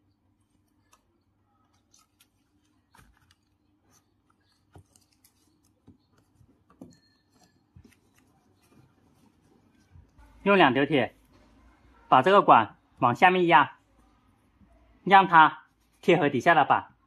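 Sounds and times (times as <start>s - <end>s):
foil tape crinkling: 1.6s - 5.7s.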